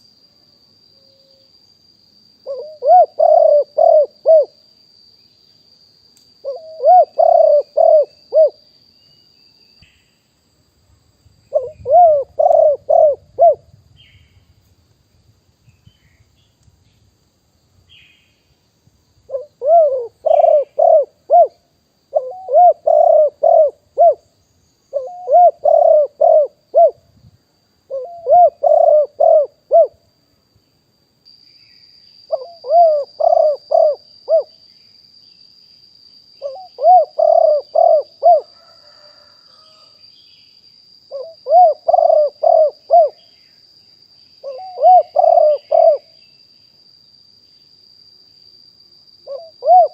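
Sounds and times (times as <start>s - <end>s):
high insect buzz: 0.0s - 49.9s
dove cooing: 2.4s - 4.6s, 6.4s - 8.6s, 11.5s - 13.8s, 19.3s - 24.2s, 24.9s - 27.0s, 27.9s - 30.0s, 32.3s - 34.5s, 36.4s - 39.9s, 41.1s - 43.2s, 44.4s - 46.2s, 49.2s - 49.9s.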